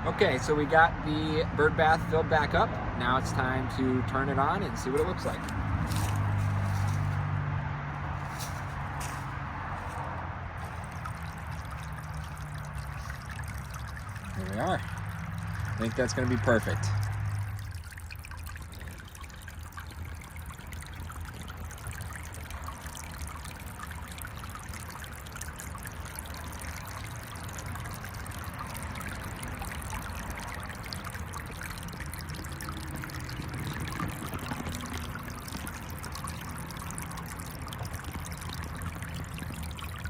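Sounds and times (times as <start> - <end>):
low steady hum: 0.0 - 40.0
water trickling and splashing: 0.0 - 40.0.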